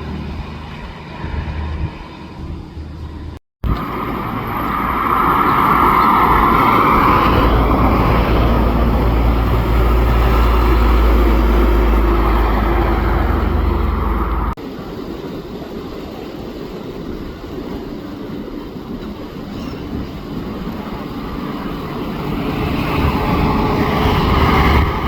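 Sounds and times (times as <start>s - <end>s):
truck engine: 0.0s - 14.6s
tyre noise on road: 0.0s - 14.6s.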